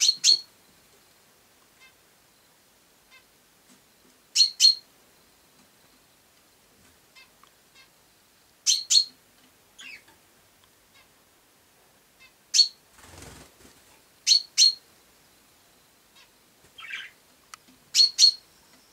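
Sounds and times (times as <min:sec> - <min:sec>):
sparrow chirping: 0:00.0 - 0:00.5, 0:04.3 - 0:04.9, 0:08.6 - 0:09.2, 0:09.8 - 0:10.1, 0:12.2 - 0:12.8, 0:14.2 - 0:14.9, 0:16.1 - 0:17.2, 0:17.9 - 0:18.9.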